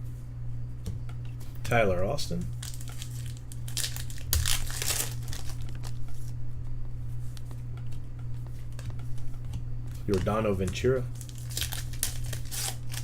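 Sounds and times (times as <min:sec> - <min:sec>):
cards and wrappers crinkling: 0:02.5 - 0:06.3, 0:10.0 - 0:13.0.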